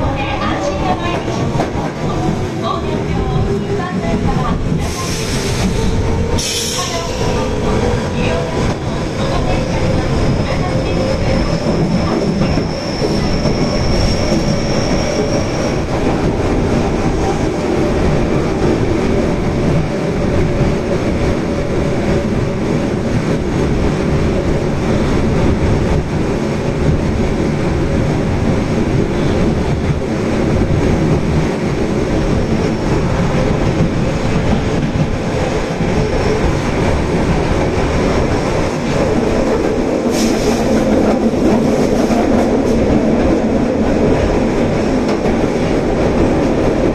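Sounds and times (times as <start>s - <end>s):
subway train running on rails: 0.0s - 46.9s.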